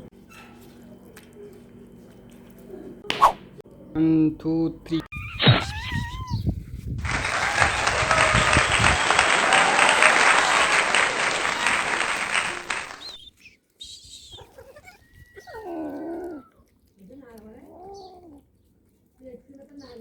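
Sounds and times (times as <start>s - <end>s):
applause: 7.0s - 13.2s.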